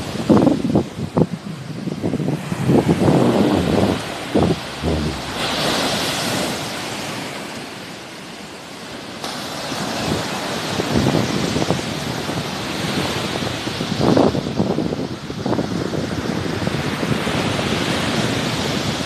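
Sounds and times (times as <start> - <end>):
wind buffeting microphone: 0.0 - 6.8
sea waves on the shore: 0.0 - 19.0.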